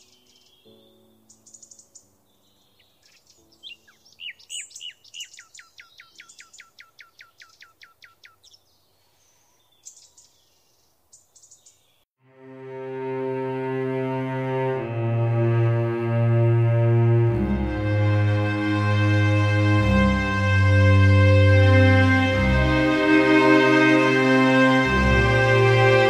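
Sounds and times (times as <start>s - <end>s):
bird whistling downward notes: 3.0s - 8.4s.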